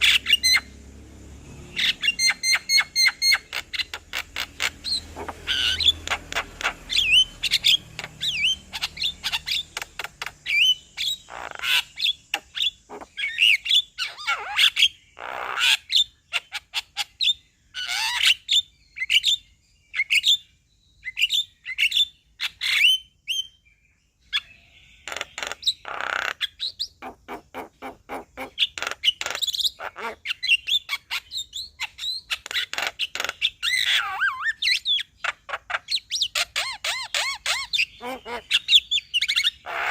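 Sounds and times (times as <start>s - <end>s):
harsh raspy bird squawks: 0.0s - 0.7s, 1.8s - 17.2s, 24.4s - 39.9s
myna chirping and whistling: 0.0s - 0.8s, 1.7s - 23.6s, 24.2s - 39.9s.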